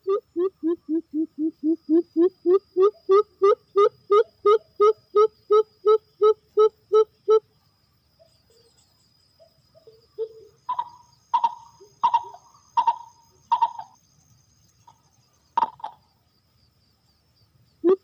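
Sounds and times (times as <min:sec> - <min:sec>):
dove cooing: 0:00.0 - 0:07.4, 0:09.8 - 0:14.0, 0:15.6 - 0:16.0.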